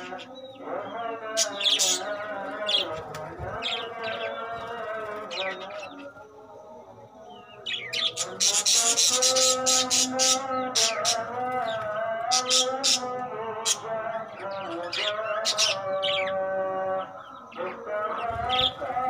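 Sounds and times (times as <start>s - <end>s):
background music with held notes: 0.0s - 19.0s
budgerigars chirping: 7.4s - 19.0s.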